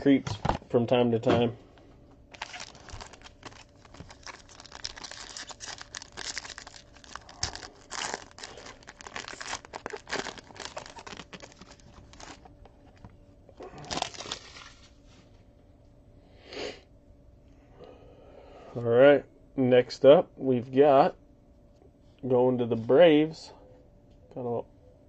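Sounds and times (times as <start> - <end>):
plastic wrapping crinkling and tearing: 2.3 - 12.5, 13.6 - 14.9.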